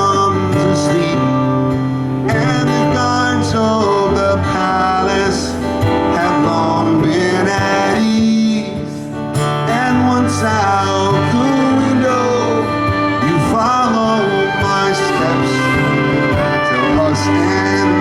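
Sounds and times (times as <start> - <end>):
guitar: 0.0 - 18.0
live band music: 10.9 - 18.0.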